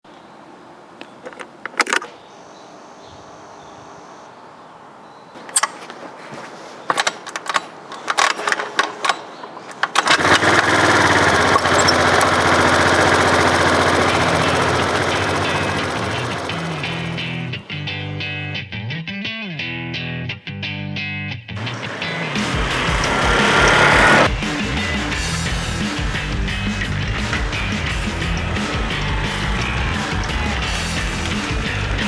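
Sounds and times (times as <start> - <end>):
sharp clicks and knocks: 6.9 - 10.5
motor running with fast pulse: 10.2 - 17.4, 21.6 - 24.3.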